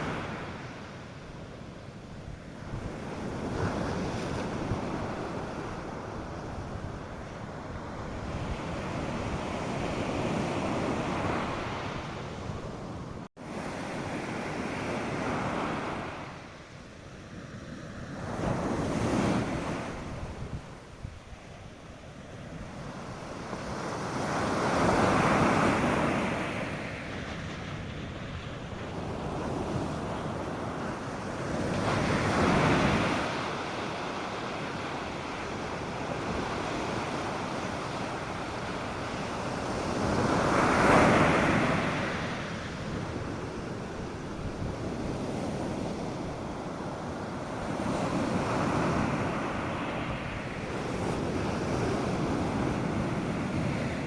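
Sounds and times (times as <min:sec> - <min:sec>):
waves breaking: 0:00.0 - 0:54.0
water washing on beach: 0:13.4 - 0:54.0.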